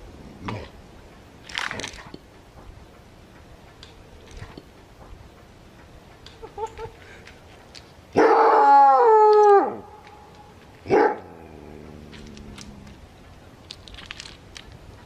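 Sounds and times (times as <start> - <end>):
dog howling: 8.2 - 9.9.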